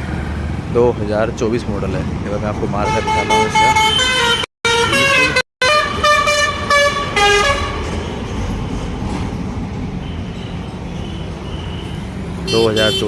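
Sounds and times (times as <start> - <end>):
tractor horn honks: 2.8 - 7.8, 12.5 - 13.0.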